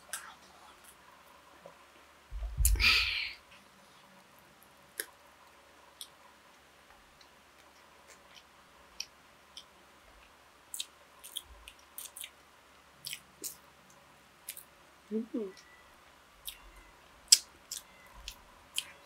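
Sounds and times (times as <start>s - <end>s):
chewing mouth clicks and smacks: 10.7s - 12.4s.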